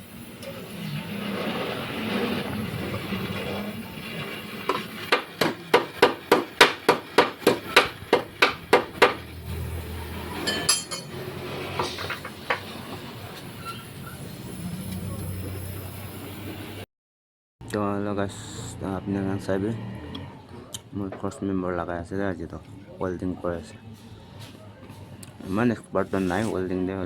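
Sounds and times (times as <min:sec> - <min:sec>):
hammer beating on metal: 0:04.7 - 0:09.2.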